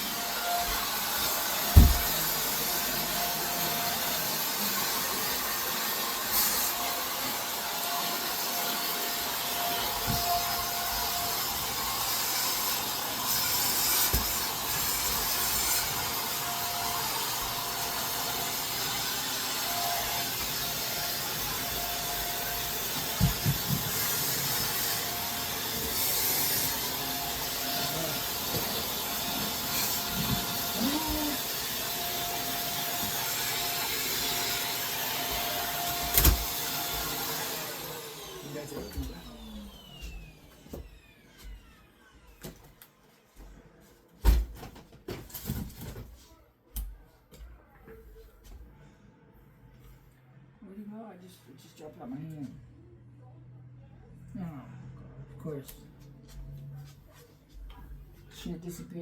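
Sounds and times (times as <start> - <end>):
vacuum cleaner running: 0.0 - 42.8
vacuum knocking on floor: 1.6 - 2.4, 23.0 - 24.0.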